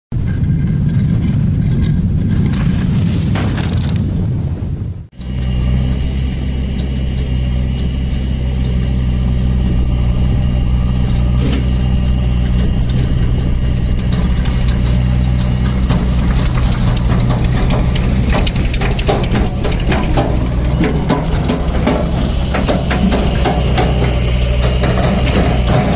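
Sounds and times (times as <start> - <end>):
diesel engine idling: 5.1 - 25.9
clicks and rattles: 10.9 - 25.9.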